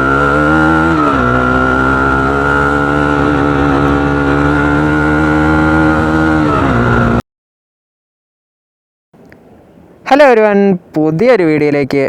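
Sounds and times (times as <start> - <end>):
motorcycle engine running: 0.0 - 7.2.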